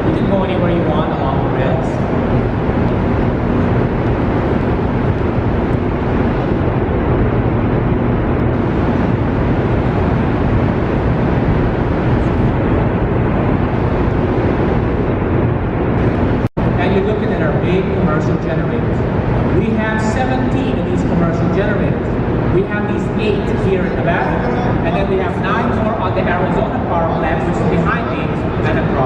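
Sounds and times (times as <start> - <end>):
faint steady hum: 0.0 - 29.0
loud rumble inside dam: 0.0 - 29.0.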